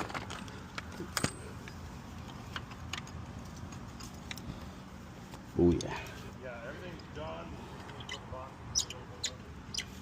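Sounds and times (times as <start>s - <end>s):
metallic clinks of hardware: 0.1s - 1.8s.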